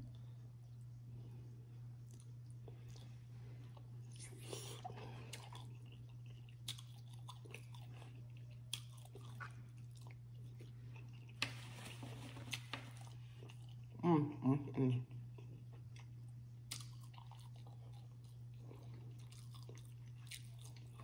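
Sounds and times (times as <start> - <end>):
low hum: 0.0 - 21.0
chewing and biting chicken: 2.0 - 11.4, 15.1 - 21.0.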